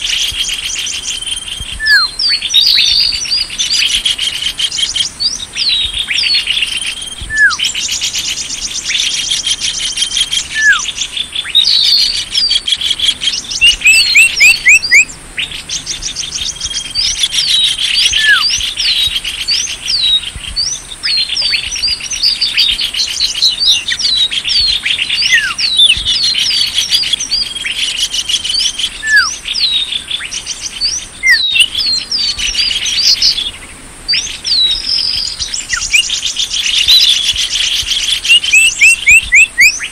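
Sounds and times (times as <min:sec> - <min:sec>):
small birds chirping and trilling: 0:00.0 - 0:39.9
falling whistle: 0:06.8 - 0:07.6.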